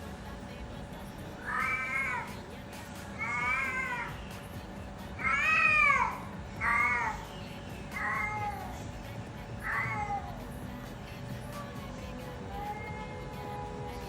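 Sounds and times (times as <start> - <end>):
cat meowing: 1.4 - 2.4, 3.2 - 4.2, 5.2 - 7.3, 7.9 - 8.9, 9.6 - 10.4, 12.5 - 13.4.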